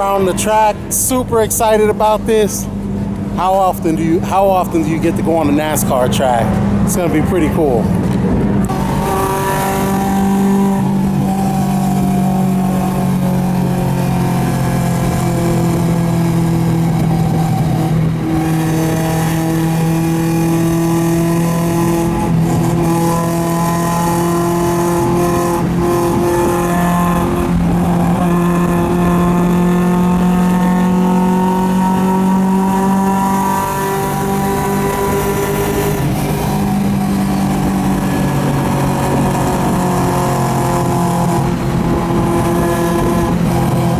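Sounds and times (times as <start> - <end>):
car engine droning: 0.0 - 43.9.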